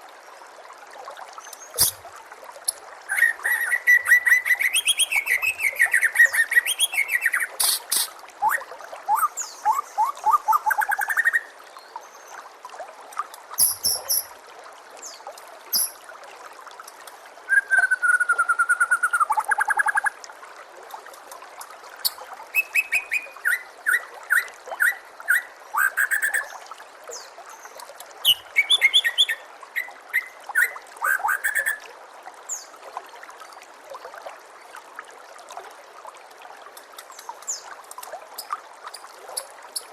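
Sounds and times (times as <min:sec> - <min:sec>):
faint trickle of water: 0:00.0 - 0:39.9
songbird singing varied phrases: 0:02.7 - 0:11.5, 0:13.6 - 0:14.3, 0:15.0 - 0:16.0, 0:22.0 - 0:26.5, 0:28.2 - 0:31.8.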